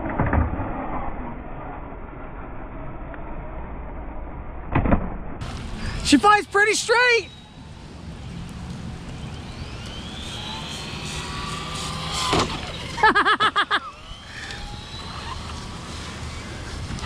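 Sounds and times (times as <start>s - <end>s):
person's voice: 5.8s - 7.3s
electric toy car motors whining: 9.3s - 13.2s, 13.8s - 17.0s.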